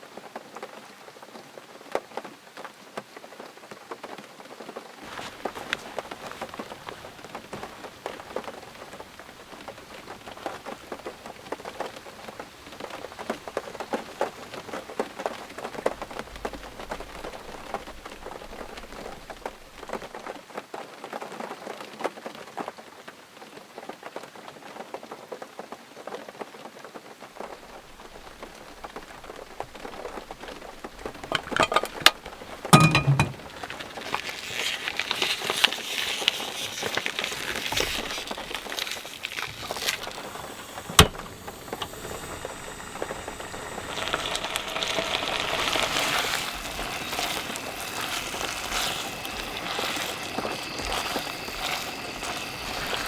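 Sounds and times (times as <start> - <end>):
heavy rain falling: 5.1 - 20.2.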